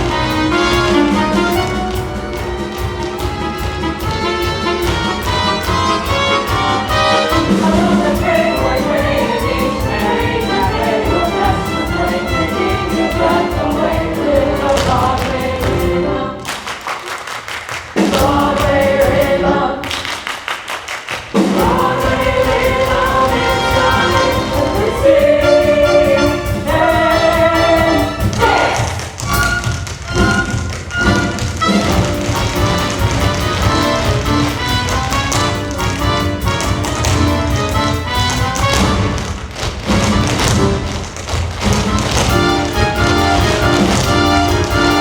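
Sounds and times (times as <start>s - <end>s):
pit orchestra: 0.0s - 16.7s, 18.0s - 20.0s, 21.3s - 45.0s
voices singing together: 6.9s - 16.7s, 18.0s - 20.3s, 21.3s - 29.2s.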